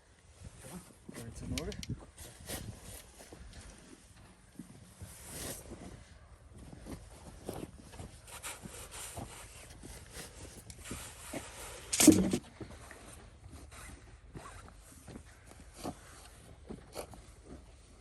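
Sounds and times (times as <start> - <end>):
spade scraping into soil: 10.8 - 12.4.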